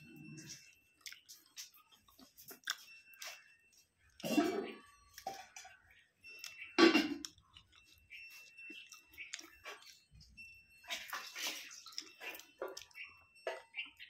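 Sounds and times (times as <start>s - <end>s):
person chewing: 0.2s - 3.5s, 6.4s - 10.1s, 11.1s - 13.0s.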